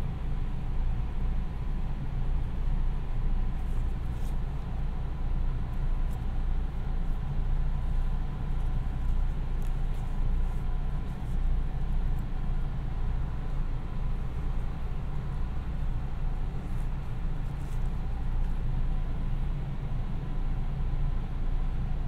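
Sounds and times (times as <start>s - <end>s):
train interior low rumble: 0.0s - 22.0s.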